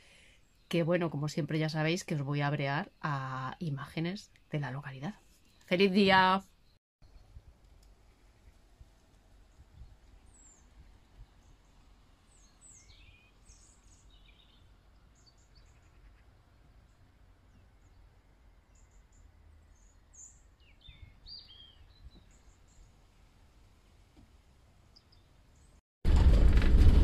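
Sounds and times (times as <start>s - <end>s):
bird chirps and calls: 19.8s - 22.6s
low steady rumble: 26.1s - 27.0s.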